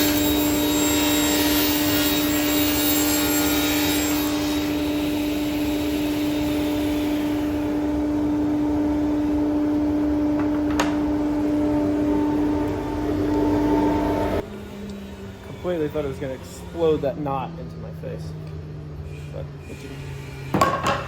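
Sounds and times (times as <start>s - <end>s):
machine humming: 0.0s - 16.8s.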